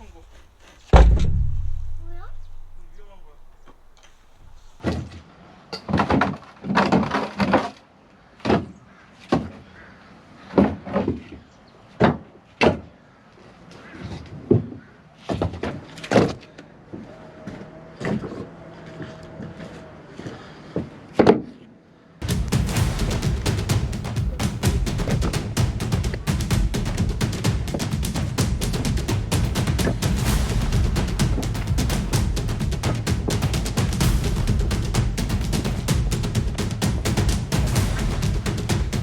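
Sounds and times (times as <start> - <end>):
firewood logs knocking together: 0.0 - 4.9.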